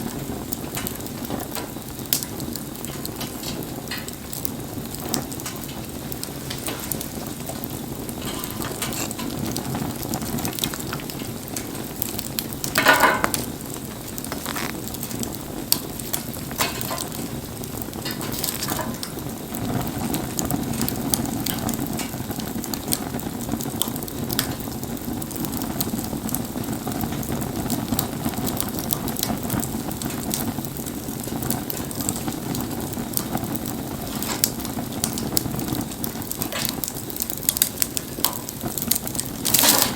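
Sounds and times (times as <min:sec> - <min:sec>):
bonfire crackling and popping: 0:00.0 - 0:39.9
rain hiss: 0:00.0 - 0:39.9.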